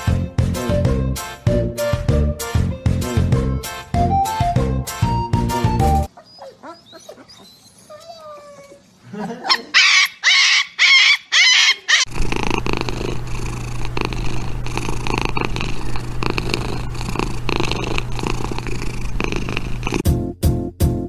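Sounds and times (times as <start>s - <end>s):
puppy howling: 9.7s - 12.1s
kitten purring: 12.0s - 20.0s.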